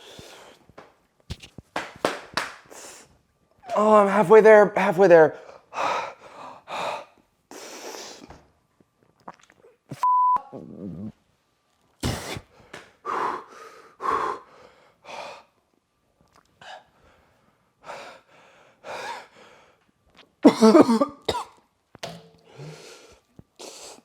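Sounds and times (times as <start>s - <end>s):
man breathing hard: 5.4s - 8.3s, 12.2s - 15.6s, 16.6s - 19.9s, 22.5s - 24.0s
man coughing: 20.4s - 21.5s.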